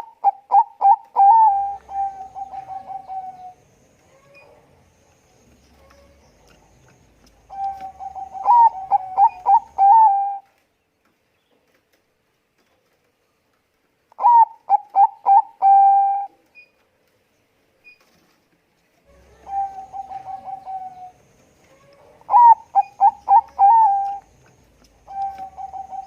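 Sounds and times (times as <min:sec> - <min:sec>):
dove cooing: 0:00.0 - 0:04.6, 0:05.7 - 0:10.4, 0:14.2 - 0:16.4, 0:19.1 - 0:26.0.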